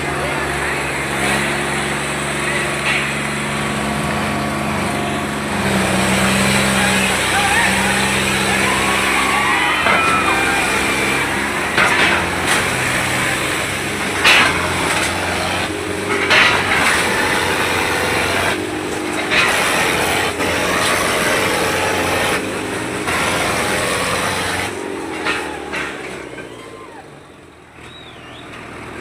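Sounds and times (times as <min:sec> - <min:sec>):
tractor diesel engine running: 0:00.0 - 0:29.0
people shouting: 0:06.4 - 0:13.6, 0:25.2 - 0:27.3.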